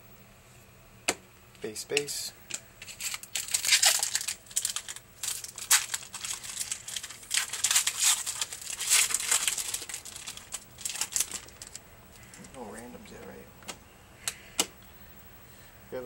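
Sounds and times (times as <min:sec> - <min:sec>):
card pack wrapper crinkling: 0:02.8 - 0:12.6.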